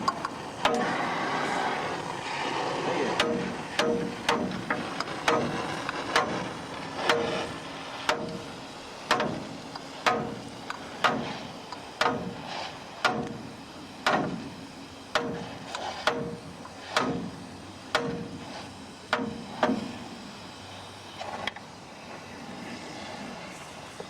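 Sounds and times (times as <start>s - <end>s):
metallic clanks of steel struck: 3.2s - 5.6s, 9.1s - 10.4s.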